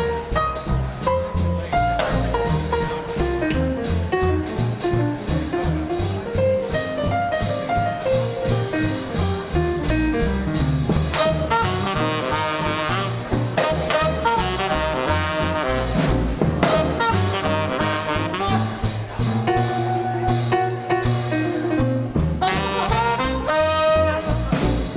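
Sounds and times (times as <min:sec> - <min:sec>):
walking bass: 0:00.0 - 0:24.9
saxophone and trumpet chords: 0:11.1 - 0:24.9.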